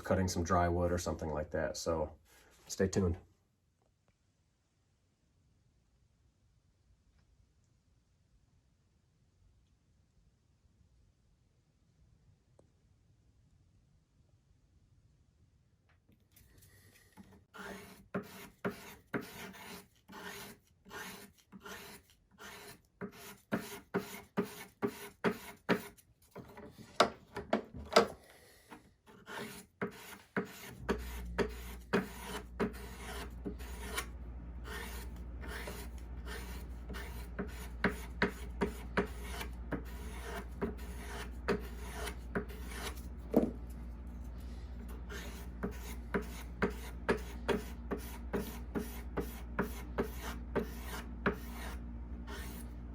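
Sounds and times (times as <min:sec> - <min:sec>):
sharpening stick scraping knife: 0:17.6 - 0:26.0, 0:29.2 - 0:34.1, 0:34.7 - 0:43.1
steady low hum: 0:30.5 - 0:52.9.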